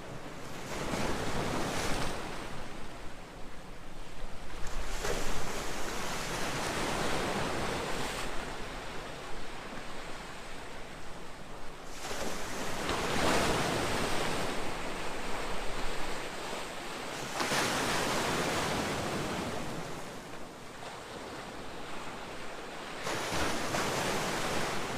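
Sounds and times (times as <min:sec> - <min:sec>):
waves breaking on beach: 0:11.8 - 0:24.9.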